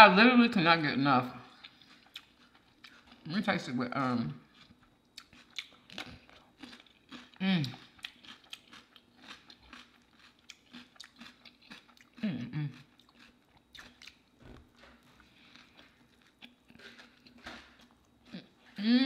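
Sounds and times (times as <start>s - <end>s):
chewing and crunching fish taco: 1.5s - 18.8s
person humming mmm: 7.4s - 7.8s, 12.2s - 12.8s, 18.3s - 19.0s.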